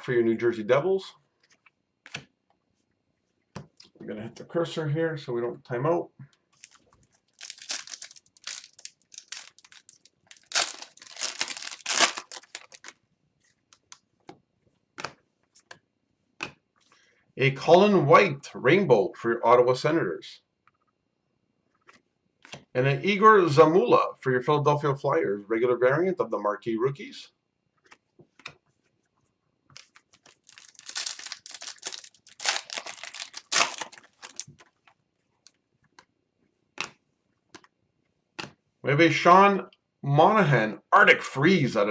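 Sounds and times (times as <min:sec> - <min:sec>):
plastic foil wrapper crinkling: 0:06.6 - 0:13.0, 0:30.3 - 0:34.5.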